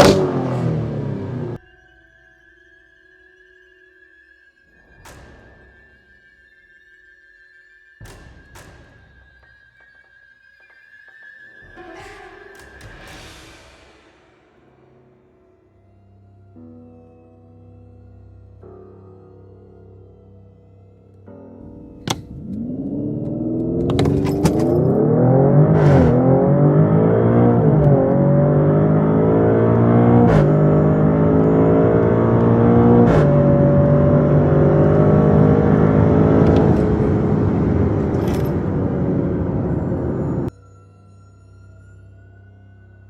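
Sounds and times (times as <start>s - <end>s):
car engine accelerating hard: 0.0s - 1.6s, 21.6s - 40.5s.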